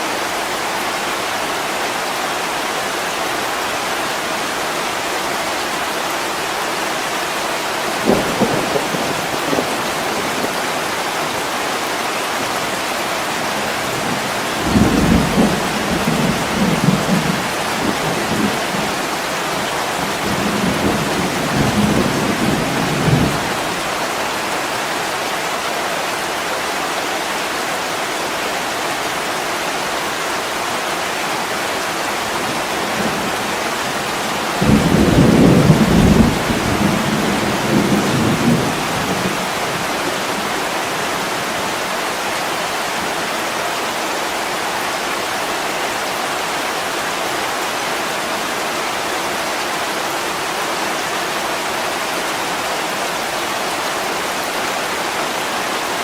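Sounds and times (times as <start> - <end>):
heavy rain: 0.0 - 56.0
rolling thunder rumble: 32.9 - 40.0.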